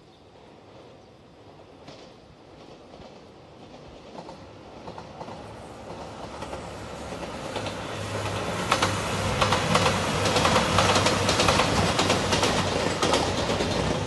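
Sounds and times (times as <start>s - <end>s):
wheels clicking over rail joints: 1.8s - 14.0s
diesel train hum: 4.2s - 14.0s.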